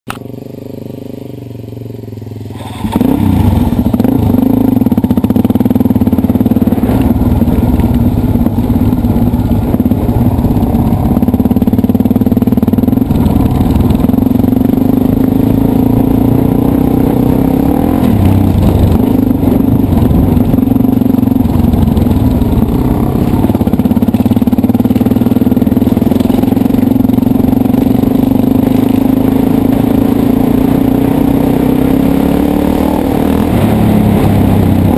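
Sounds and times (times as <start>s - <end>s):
dirt bike engine running: 0.1s - 34.9s.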